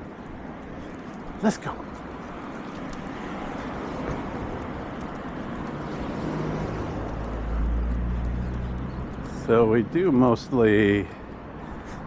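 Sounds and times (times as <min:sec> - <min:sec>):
road traffic rumble: 0:00.0 - 0:12.0
vehicle approaching: 0:00.0 - 0:12.0.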